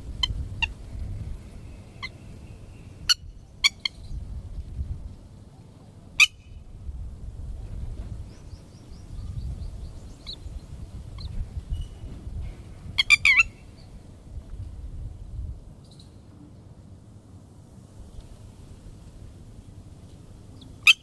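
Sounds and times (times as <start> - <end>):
lapwing calls: 1.7 - 4.0, 13.0 - 13.8.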